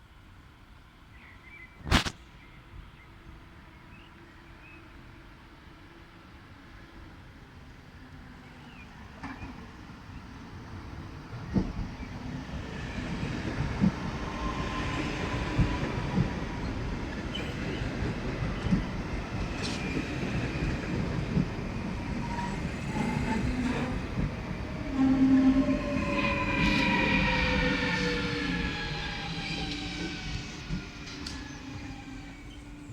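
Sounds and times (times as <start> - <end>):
train rumbling on track: 5.6 - 32.9
whining tones sliding down: 24.8 - 32.7.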